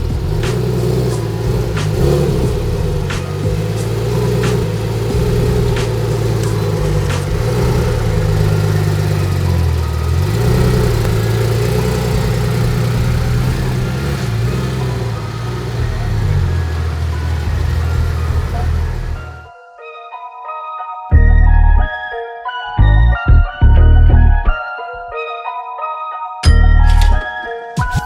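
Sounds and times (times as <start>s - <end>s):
car engine revving: 0.0s - 19.5s.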